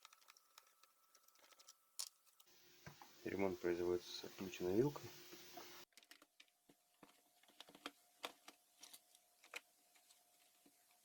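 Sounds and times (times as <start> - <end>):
faint steady hum: 0.0 - 5.9.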